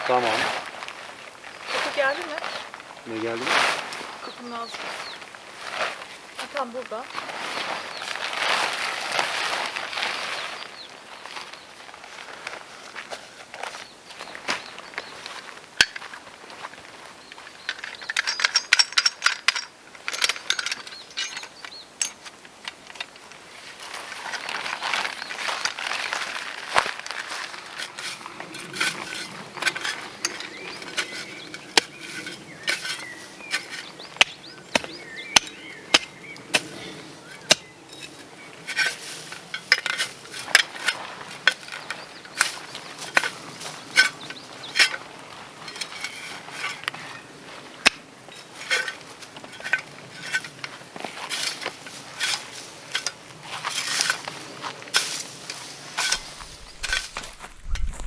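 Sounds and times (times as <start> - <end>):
tent pitching clicks and knocks: 1.7 - 58.0.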